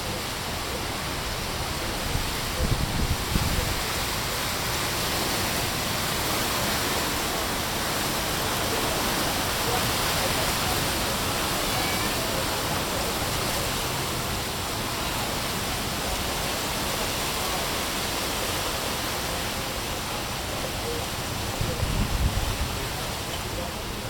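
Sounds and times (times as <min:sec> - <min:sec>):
wind rumbling on microphone: 0:00.0 - 0:11.6, 0:18.6 - 0:24.0
sea surf rushing: 0:00.0 - 0:24.0.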